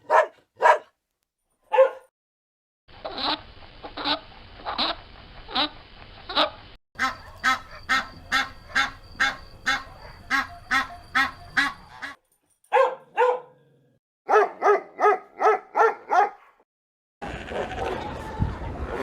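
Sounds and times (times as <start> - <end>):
waterfowl harsh calls: 3.0 - 12.2.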